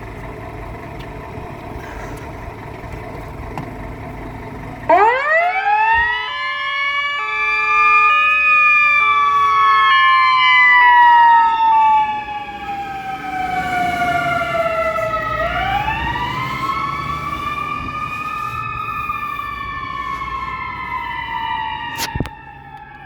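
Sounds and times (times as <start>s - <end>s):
fire engine siren wailing: 0.0s - 23.0s
two-note hi-lo siren tone: 4.9s - 18.9s.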